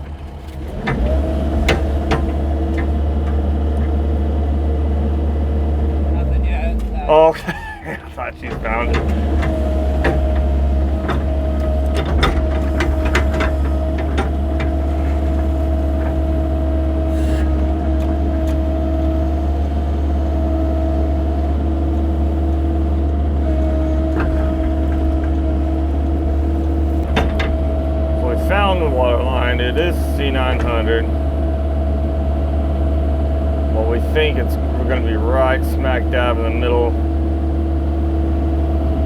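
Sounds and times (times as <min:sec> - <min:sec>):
sharp clicks and knocks: 0:00.0 - 0:04.0, 0:06.8 - 0:19.7, 0:23.5 - 0:31.2
excavator engine running: 0:00.0 - 0:39.0
hydraulic whine: 0:00.0 - 0:39.0.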